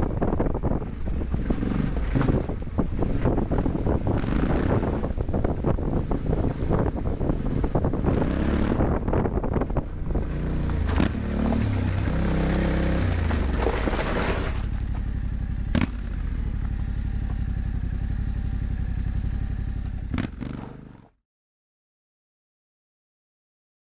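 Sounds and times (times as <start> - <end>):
wind noise: 0.0 - 15.2
road noise: 0.0 - 21.1
motorcycle engine: 0.0 - 21.2.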